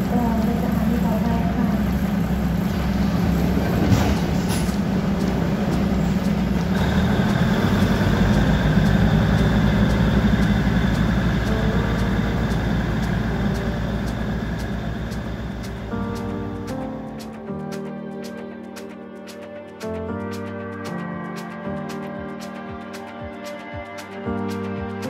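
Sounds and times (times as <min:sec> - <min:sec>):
high steady whine: 0:00.0 - 0:17.9
train engine hum: 0:00.0 - 0:25.0.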